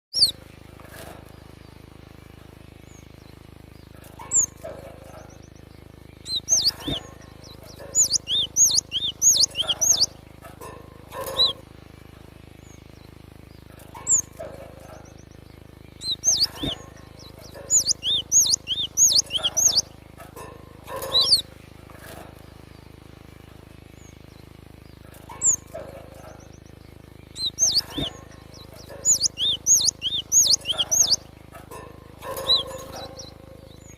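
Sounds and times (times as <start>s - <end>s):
bird singing high whistled notes: 0.1s - 0.4s, 6.2s - 10.2s, 16.0s - 19.9s, 27.3s - 31.2s, 32.3s - 33.9s
bird chirping: 0.1s - 11.8s, 12.5s - 33.9s
steady low hum: 0.1s - 33.9s
sharp downward sliding bird call: 7.9s - 10.1s, 17.7s - 19.8s, 29.0s - 31.2s.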